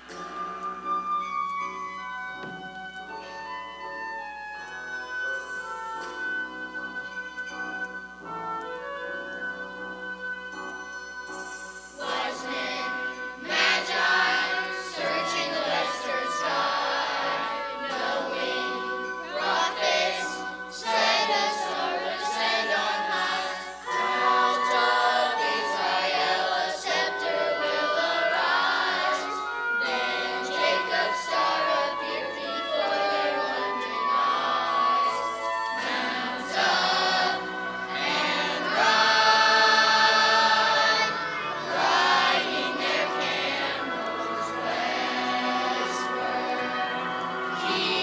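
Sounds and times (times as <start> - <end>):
musical accompaniment: 0.0 - 48.0
choir singing: 12.0 - 48.0.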